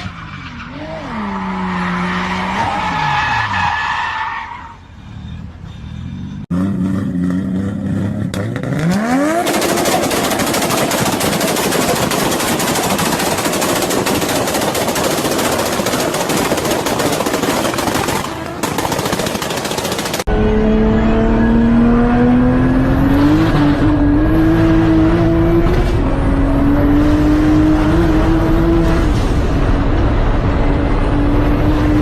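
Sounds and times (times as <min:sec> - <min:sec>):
harsh crackling engine rasp: 0:04.6 - 0:20.4
car engine accelerating: 0:20.2 - 0:32.0.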